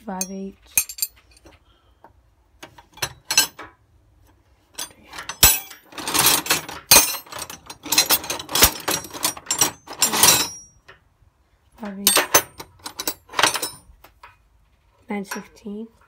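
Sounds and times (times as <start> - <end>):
metal tools clinking: 0.0 - 1.6, 2.8 - 3.8, 4.7 - 11.0, 12.0 - 13.9.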